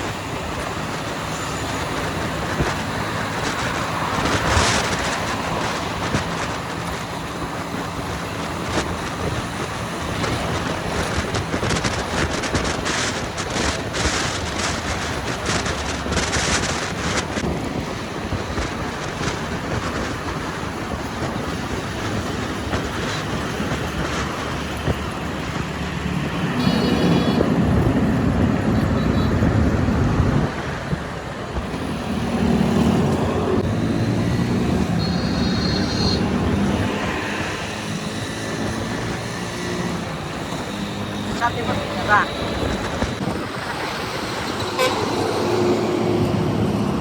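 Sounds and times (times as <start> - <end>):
high metallic squeals: 34.8 - 36.4.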